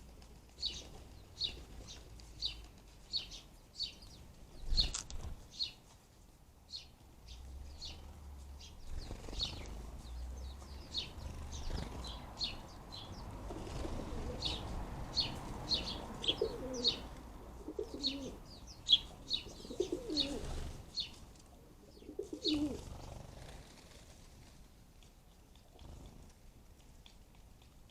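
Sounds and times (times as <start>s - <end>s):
sparrows chirping: 0.4s - 6.0s, 6.6s - 23.8s
dove cooing: 13.3s - 14.7s, 15.8s - 18.4s, 19.2s - 20.7s, 21.6s - 23.4s.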